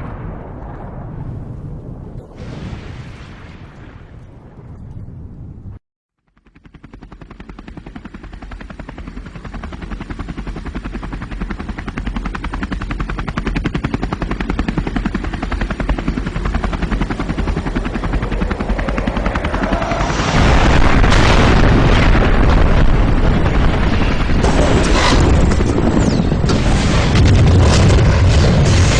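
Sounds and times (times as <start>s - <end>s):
rumble: 0.0s - 28.9s
heavy crashes: 19.6s - 28.9s.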